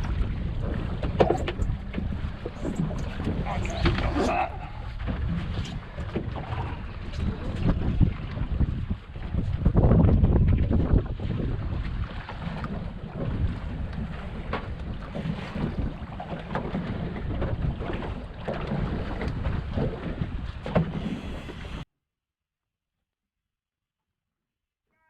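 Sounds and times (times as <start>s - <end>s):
wind buffeting microphone: 0.0s - 21.8s
water noise: 0.0s - 21.9s.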